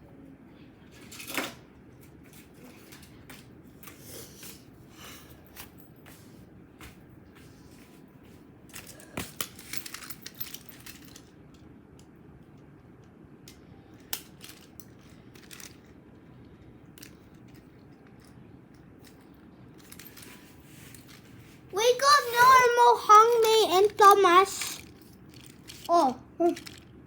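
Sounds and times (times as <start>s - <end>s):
toy train pieces clicking and rattling: 8.7s - 11.4s, 13.5s - 16.0s, 16.9s - 27.0s.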